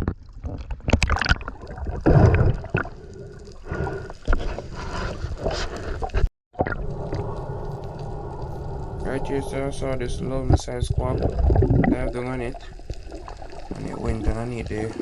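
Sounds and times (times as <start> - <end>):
water sloshing and gurgling: 0.0 - 15.0
steady hum: 6.8 - 13.2.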